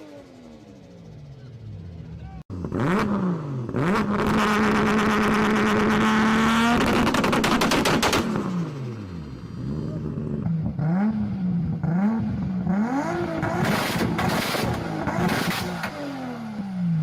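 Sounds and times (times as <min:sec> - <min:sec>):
car engine revving: 0:00.0 - 0:17.0
exhaust crackles and pops: 0:06.7 - 0:08.5.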